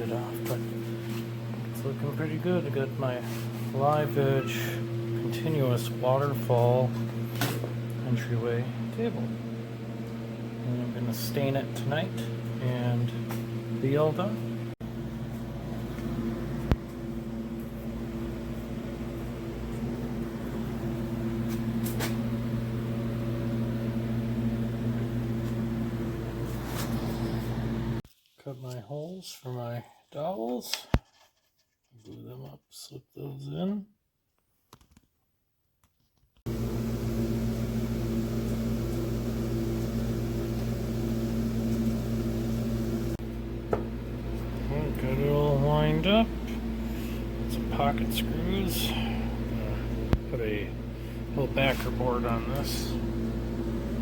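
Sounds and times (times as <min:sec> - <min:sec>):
machine humming: 0:00.0 - 0:28.0, 0:36.5 - 0:54.0
electric motor humming: 0:36.5 - 0:54.0.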